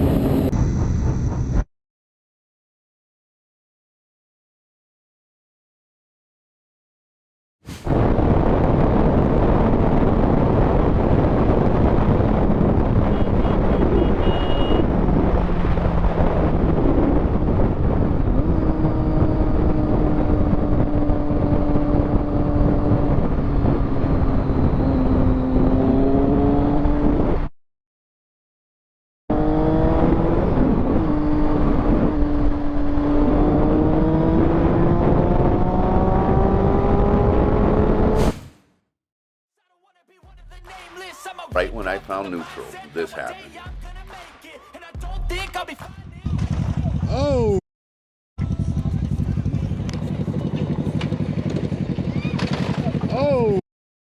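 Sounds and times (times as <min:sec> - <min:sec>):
wind and road roar: 0:00.0 - 0:01.7, 0:07.7 - 0:27.5, 0:29.3 - 0:38.6, 0:48.4 - 0:53.6
motorcycle engine accelerating: 0:14.8 - 0:27.5, 0:29.3 - 0:38.2, 0:46.3 - 0:47.5, 0:48.4 - 0:53.6.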